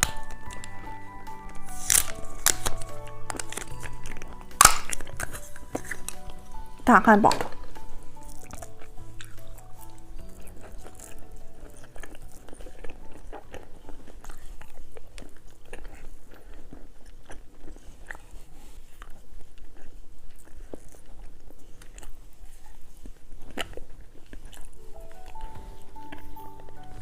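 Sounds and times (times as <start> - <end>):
music: 0.0 - 16.0, 24.3 - 27.0
chewing and crunching candy: 0.0 - 27.0.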